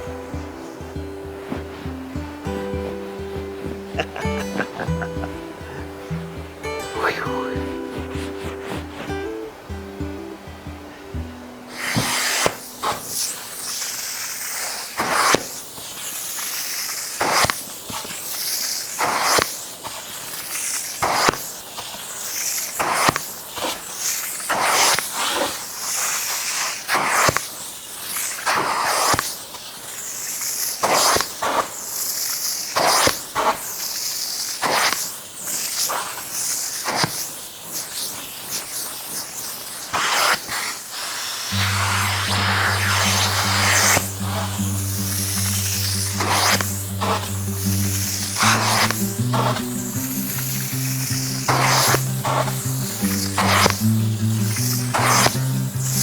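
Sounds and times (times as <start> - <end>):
hand scrubbing wet fabric: 11.7 - 56.0.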